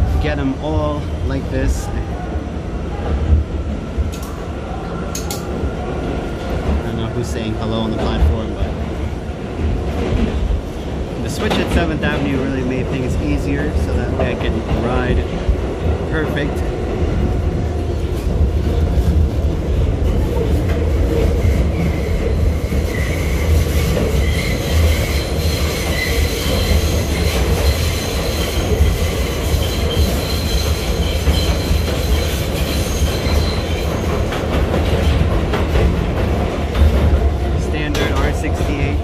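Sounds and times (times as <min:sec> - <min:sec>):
subway train rumble: 0:00.0 - 0:39.0
high wheel squeal: 0:21.4 - 0:34.1.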